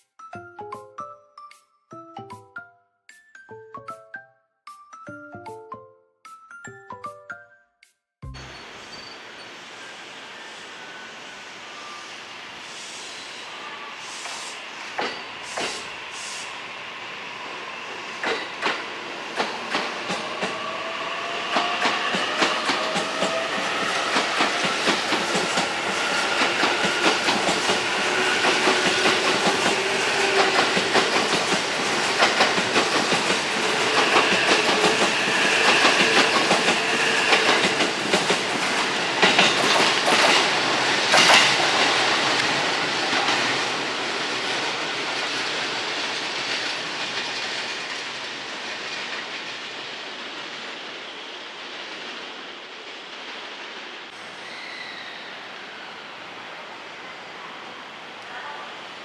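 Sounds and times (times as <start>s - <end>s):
train whine rising in pitch: 8.3s - 46.6s
wheels clicking over rail joints: 18.2s - 20.6s, 21.5s - 40.5s, 41.1s - 43.8s.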